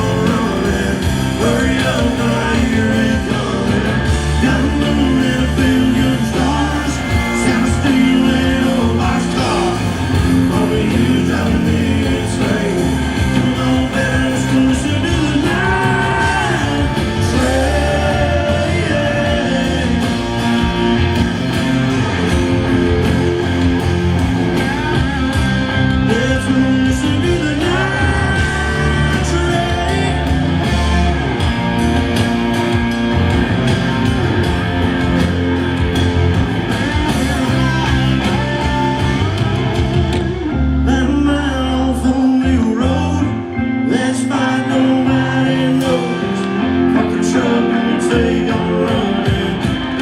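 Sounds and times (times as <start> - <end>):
person singing: 0.0 - 21.1, 26.0 - 31.1, 40.8 - 50.0
rock band playing live: 0.0 - 50.0.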